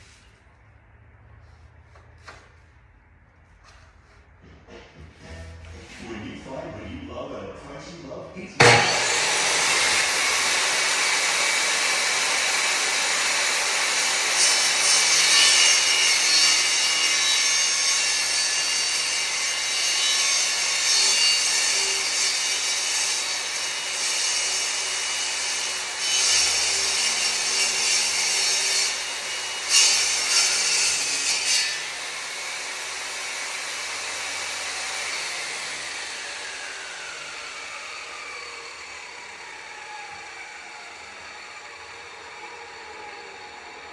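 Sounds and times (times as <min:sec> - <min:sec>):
saw blade winding down whine: 0:08.6 - 0:17.7, 0:28.9 - 0:43.9
table saw cutting flooring: 0:08.6 - 0:43.9.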